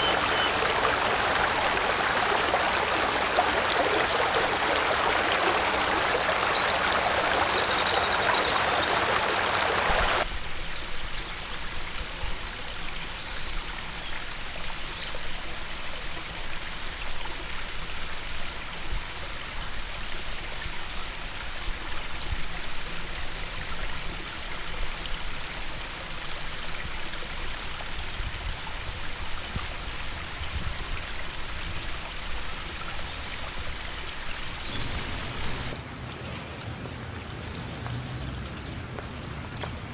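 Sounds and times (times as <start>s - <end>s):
rain hissing: 0.0s - 11.9s, 28.2s - 35.8s
running water: 0.0s - 39.9s.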